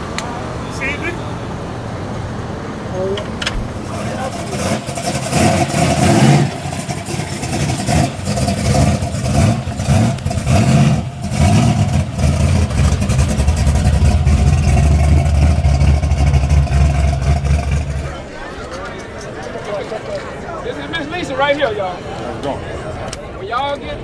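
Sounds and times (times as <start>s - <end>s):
race car engine revving: 1.5s - 19.2s.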